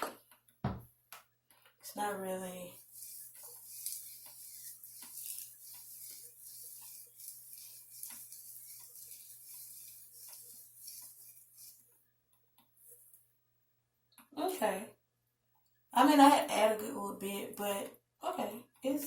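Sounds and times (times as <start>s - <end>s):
hands raking gel through hair: 2.5s - 11.9s.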